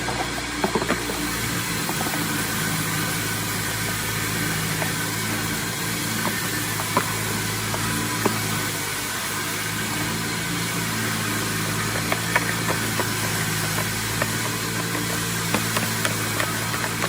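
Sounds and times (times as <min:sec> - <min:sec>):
lawn mower engine idling: 0:00.0 - 0:17.0.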